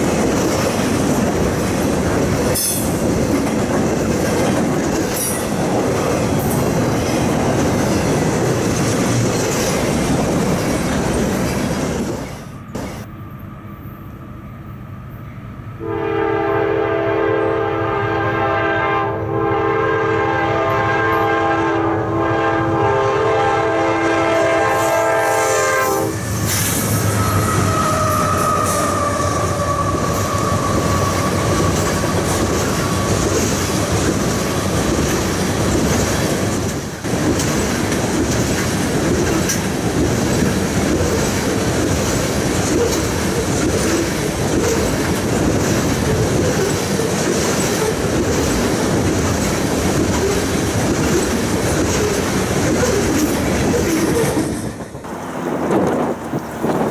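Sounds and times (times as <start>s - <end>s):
rail clickety-clack: 0.0s - 14.0s, 22.2s - 56.9s
train wheels rumbling: 0.0s - 56.9s
locomotive air horn: 15.8s - 26.3s, 26.9s - 32.6s.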